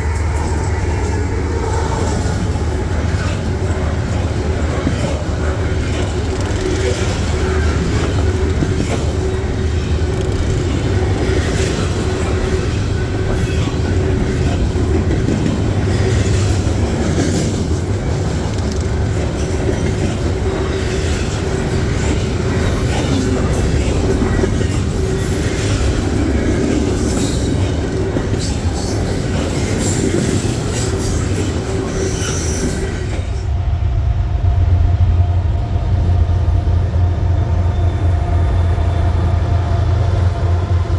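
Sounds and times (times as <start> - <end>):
wheels clicking over rail joints: 0.0 - 33.5
train wheels rumbling on rails: 0.0 - 40.9
high wheel squeal: 20.5 - 33.5.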